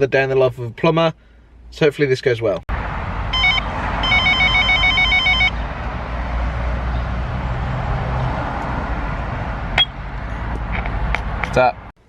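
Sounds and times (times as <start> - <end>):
vehicle engine and road noise: 2.7 - 12.0
electronic ringtone warbling: 3.4 - 5.6.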